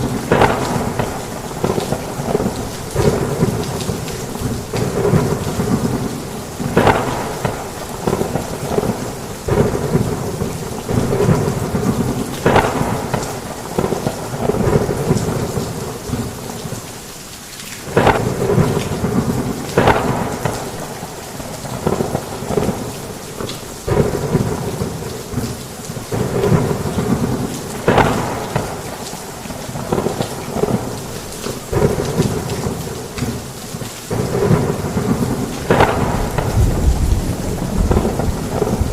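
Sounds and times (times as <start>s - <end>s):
sharp thunder cracks: 0.0s - 16.2s, 17.9s - 22.8s, 26.1s - 31.0s, 34.1s - 38.9s
thunder rumbling: 0.0s - 16.5s, 17.9s - 33.5s, 34.1s - 38.9s
heavy rain on a roof: 0.0s - 38.9s.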